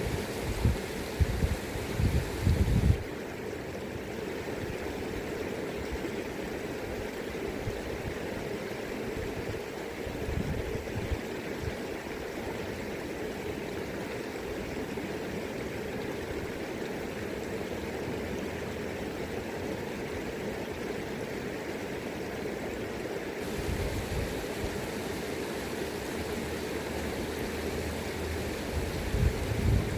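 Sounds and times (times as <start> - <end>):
wind rumble on microphone: 0.0 - 3.0, 10.2 - 11.7, 23.4 - 24.8, 28.5 - 29.9
river water rushing: 0.0 - 10.2, 11.2 - 29.9.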